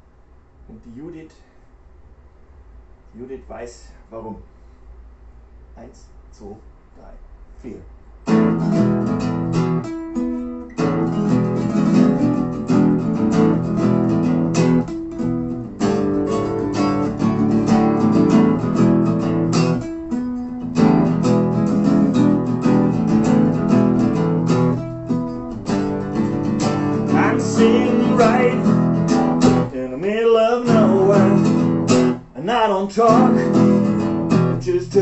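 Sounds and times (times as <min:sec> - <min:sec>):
acoustic guitars strumming chords: 0:08.2 - 0:35.0.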